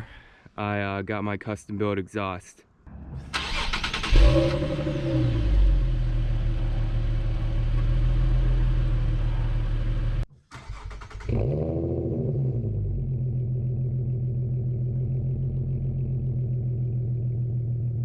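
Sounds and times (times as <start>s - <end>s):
car engine idling: 3.3s - 10.3s.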